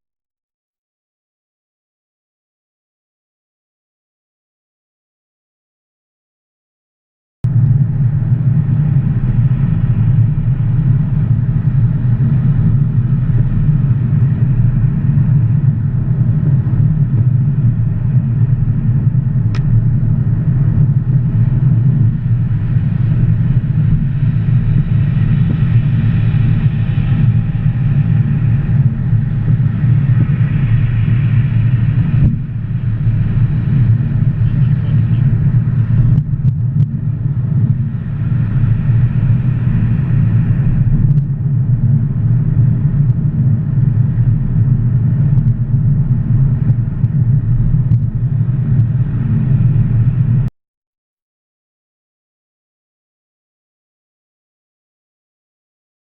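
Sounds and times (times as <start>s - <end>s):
car engine low rumble: 7.4s - 50.5s.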